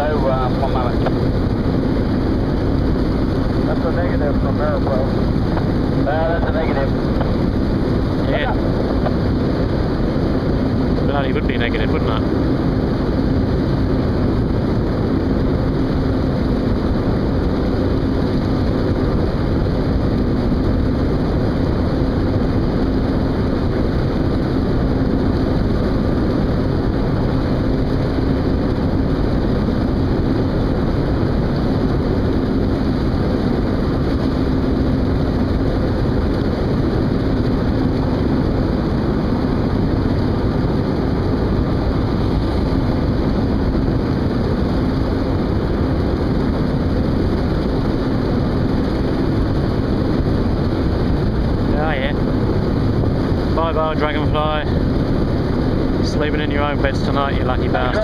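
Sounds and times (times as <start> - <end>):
ship engines droning: 0.0 - 14.8, 49.2 - 58.0
low hum: 0.0 - 58.0.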